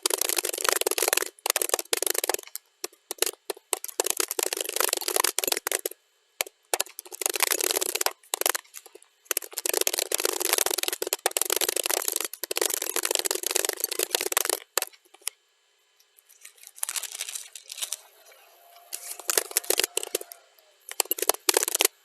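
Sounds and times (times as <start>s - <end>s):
rapid keyboard typing: 0.0s - 15.3s, 18.8s - 22.0s.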